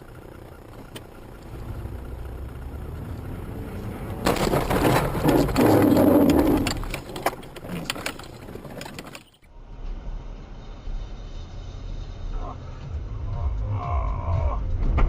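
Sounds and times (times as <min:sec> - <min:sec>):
car collision crunching and scraping: 0:00.6 - 0:09.5
rattling clicks: 0:03.2 - 0:09.5.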